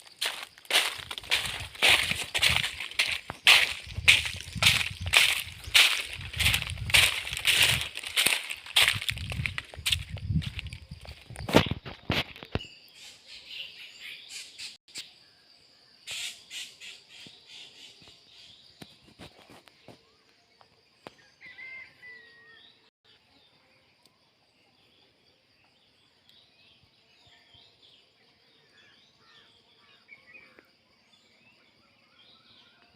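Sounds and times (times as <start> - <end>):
small birds chirping: 0.0 - 15.1.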